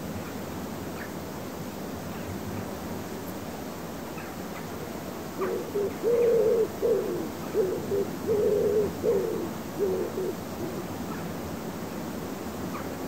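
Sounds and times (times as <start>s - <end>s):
faint outdoor hiss: 0.0s - 13.0s
bird hooting: 5.4s - 10.9s.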